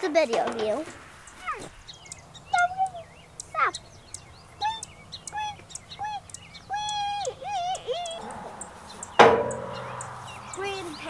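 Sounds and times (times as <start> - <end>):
birds whistling calls: 0.4 - 11.0
metallic clang: 9.2 - 10.1.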